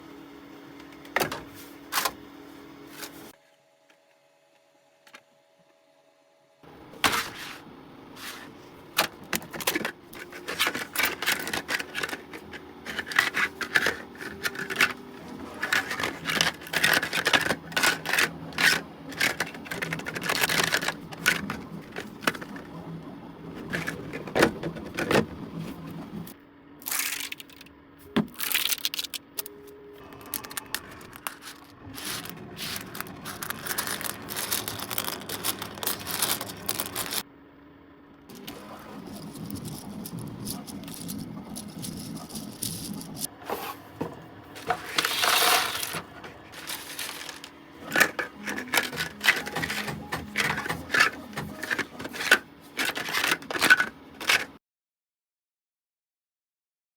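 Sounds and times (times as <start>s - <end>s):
plastic parts clicking and scraping: 8.2s - 37.2s, 38.3s - 54.6s.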